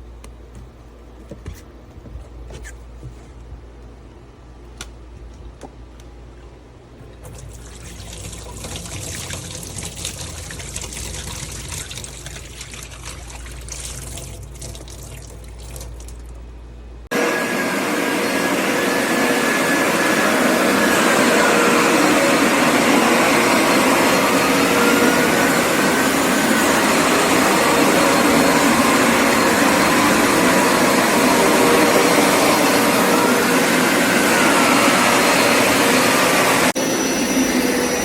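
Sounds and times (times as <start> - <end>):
water pouring and trickling: 7.2 - 16.4
carpet cleaner motor running: 17.1 - 38.0.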